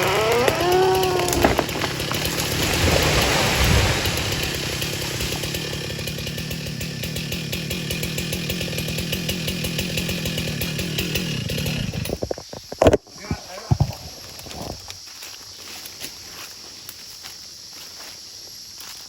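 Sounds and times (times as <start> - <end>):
chainsaw engine running: 0.0 - 12.7.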